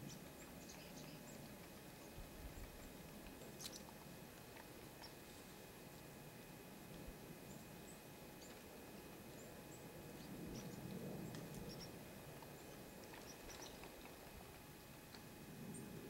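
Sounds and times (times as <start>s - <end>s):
small birds chirping: 0.0s - 3.9s, 4.9s - 5.3s, 9.3s - 14.1s
low outdoor rumble: 0.0s - 16.0s.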